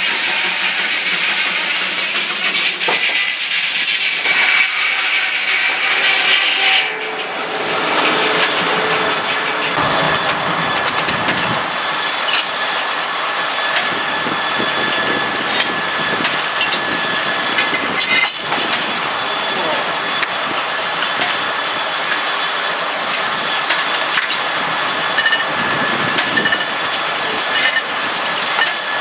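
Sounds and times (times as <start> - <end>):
sawmill running: 7.2 - 13.0.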